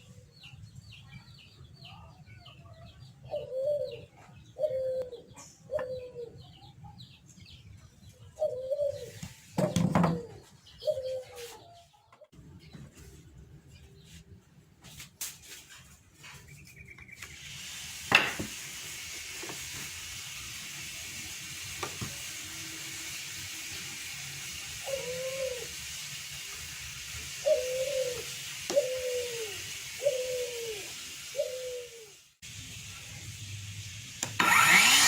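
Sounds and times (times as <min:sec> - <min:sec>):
bird cooing: 0:03.2 - 0:06.7, 0:08.4 - 0:09.2, 0:10.0 - 0:11.8, 0:24.8 - 0:25.7, 0:27.4 - 0:32.2
steady hiss: 0:17.2 - 0:35.0.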